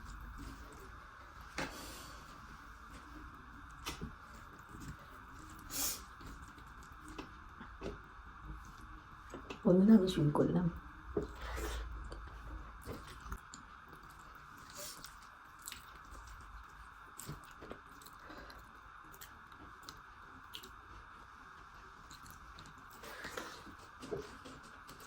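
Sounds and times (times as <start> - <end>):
person chewing food: 1.6 - 8.9, 11.2 - 21.1, 22.0 - 25.0.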